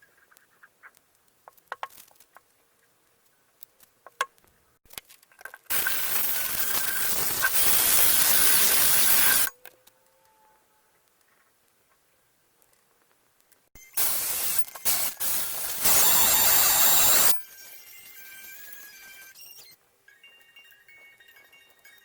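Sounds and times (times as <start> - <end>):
spray nozzle hissing: 5.7 - 9.5, 14.0 - 17.4.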